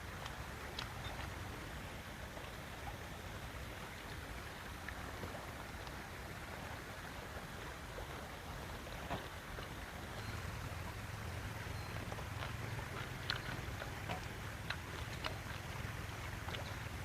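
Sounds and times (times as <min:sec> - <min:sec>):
flowing stream: 0:00.0 - 0:17.0
faint ticks: 0:00.1 - 0:01.4, 0:11.8 - 0:16.9.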